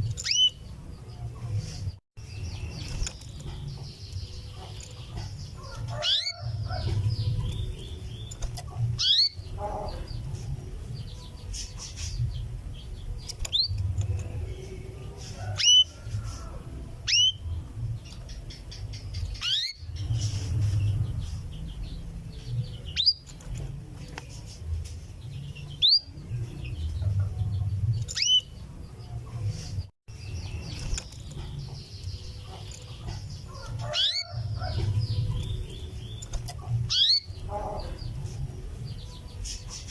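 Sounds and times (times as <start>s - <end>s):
canary calls: 0.0s - 1.2s, 2.5s - 12.5s, 13.2s - 21.8s, 25.7s - 29.2s, 30.4s - 38.5s.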